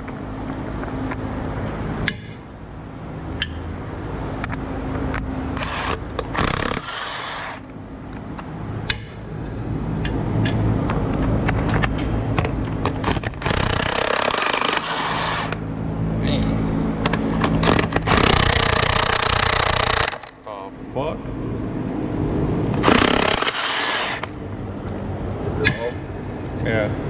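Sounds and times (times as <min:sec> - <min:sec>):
loud power tool noise: 0:05.6 - 0:07.6, 0:13.0 - 0:15.6, 0:17.6 - 0:20.4, 0:22.8 - 0:24.3
sharp clicks: 0:17.0 - 0:20.4, 0:22.7 - 0:24.4.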